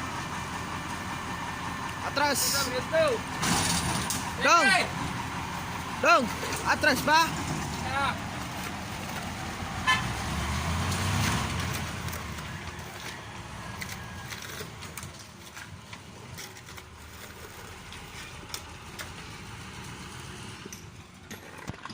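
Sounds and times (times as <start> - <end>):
diesel truck engine rumbling: 0.0 - 21.9.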